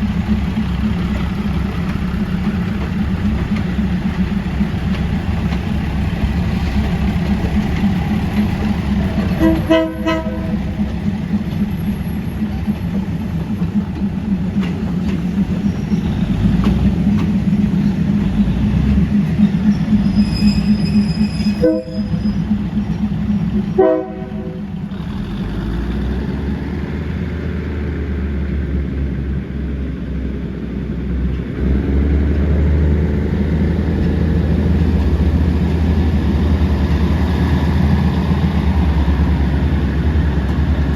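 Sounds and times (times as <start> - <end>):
diesel train engine running: 0.0 - 40.9
train horn blasts: 9.2 - 10.8, 20.2 - 22.2, 23.8 - 24.7.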